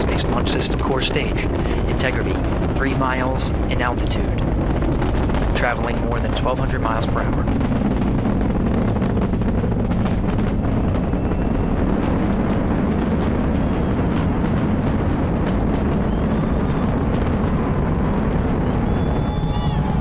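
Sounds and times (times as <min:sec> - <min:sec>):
rocket engines deep crackling rumble: 0:00.0 - 0:20.0.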